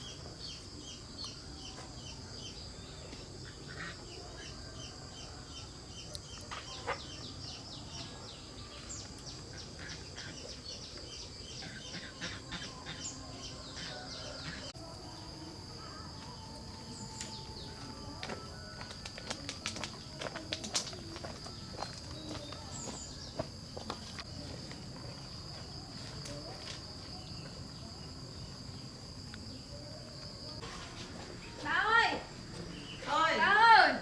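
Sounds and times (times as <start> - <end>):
small birds chirping: 0.0 - 30.6
chickens clucking: 11.6 - 14.7.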